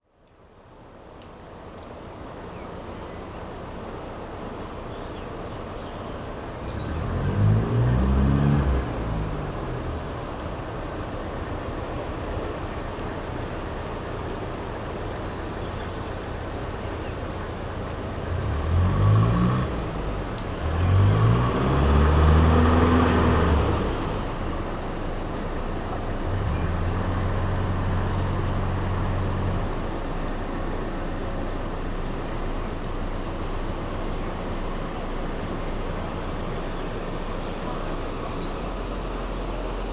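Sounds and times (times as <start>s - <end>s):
low engine hum: 0.0s - 39.9s.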